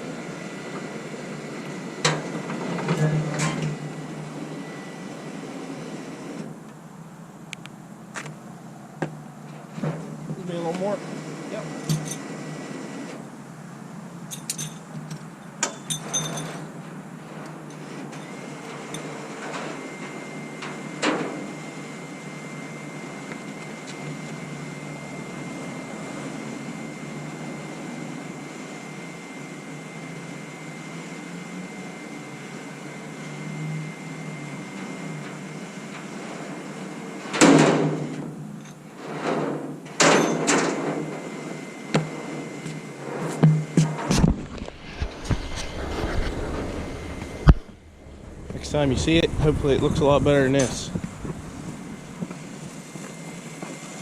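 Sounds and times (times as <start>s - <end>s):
faint high whine: 0.0s - 6.7s, 17.4s - 38.8s, 40.1s - 54.0s
steady hum: 40.9s - 54.0s.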